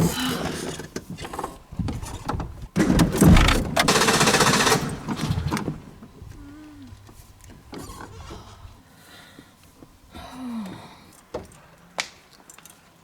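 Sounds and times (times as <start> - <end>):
car engine cranking and sputtering: 0.0 - 8.5.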